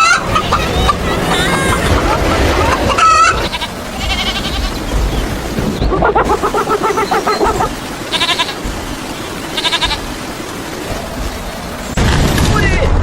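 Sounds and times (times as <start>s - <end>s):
high chirping bursts: 0.0s - 12.0s
steady background hiss: 0.0s - 12.2s
wavering bleat-like animal call: 3.0s - 4.9s.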